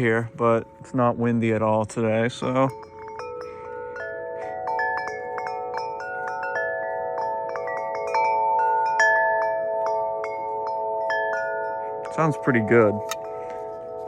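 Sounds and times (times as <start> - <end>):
tubular wind chime ringing: 0.0 - 14.0.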